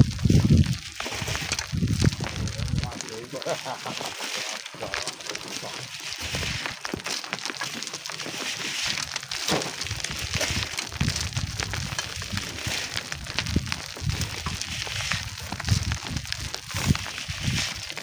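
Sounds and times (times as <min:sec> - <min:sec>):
wind rumbling on microphone: 0:00.0 - 0:03.4, 0:06.0 - 0:07.0, 0:08.9 - 0:18.0
crackling and crunching: 0:00.0 - 0:18.0.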